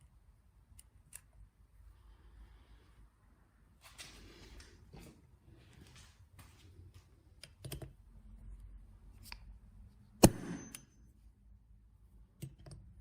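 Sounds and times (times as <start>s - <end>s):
sharp metallic clack: 10.2s - 11.0s.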